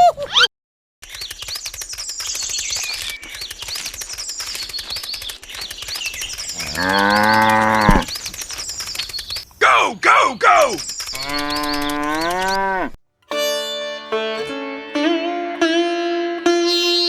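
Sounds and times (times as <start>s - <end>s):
cow mooing: 6.6s - 8.1s.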